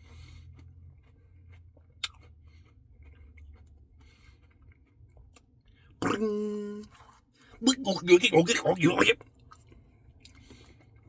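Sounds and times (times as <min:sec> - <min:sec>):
chewing with wet mouth clicks: 0:00.2 - 0:06.2.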